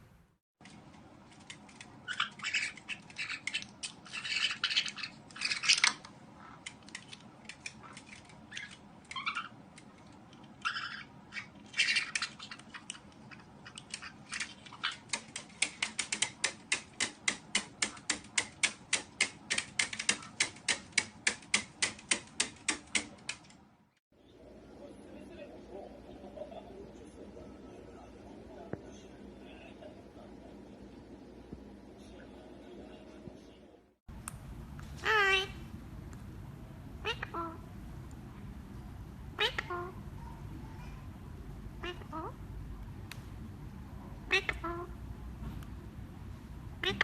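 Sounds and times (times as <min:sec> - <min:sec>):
parrot chirping and squawking: 0:01.5 - 0:19.1, 0:35.0 - 0:35.7, 0:37.0 - 0:37.8, 0:39.3 - 0:41.0, 0:41.7 - 0:42.5, 0:44.2 - 0:45.2, 0:46.6 - 0:47.0.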